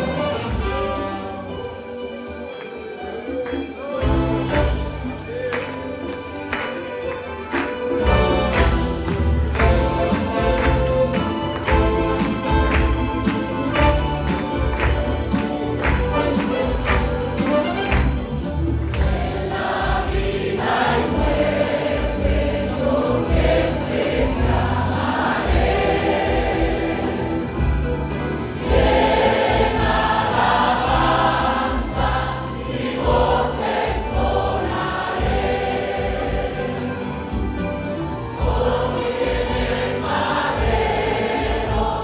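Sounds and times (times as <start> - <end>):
instrumental accompaniment: 0.0 - 42.0
church choir singing a hymn: 8.0 - 18.0, 19.0 - 37.7, 38.3 - 42.0.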